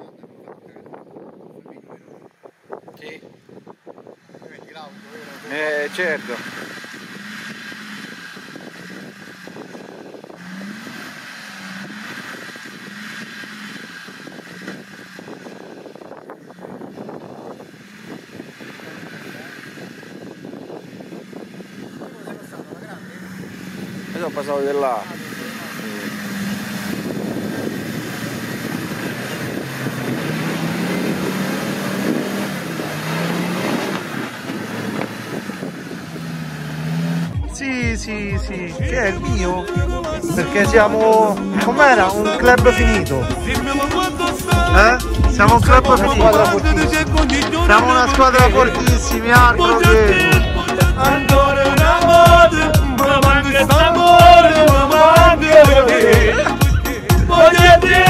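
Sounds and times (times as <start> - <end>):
off-road engine at low revs: 0.0 - 58.0
rough rushing noise: 2.8 - 58.0.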